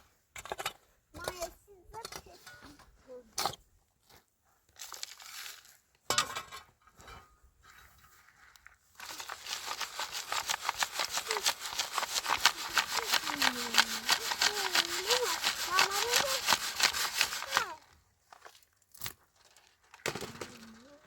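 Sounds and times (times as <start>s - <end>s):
soil rustling in a sieve: 4.7s - 6.0s, 7.7s - 20.0s
grit scraping on mesh: 9.0s - 17.8s.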